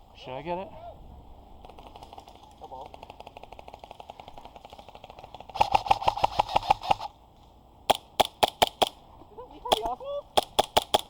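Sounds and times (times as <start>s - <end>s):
airsoft guns firing full auto: 1.6s - 7.1s, 7.9s - 9.0s, 9.7s - 11.0s.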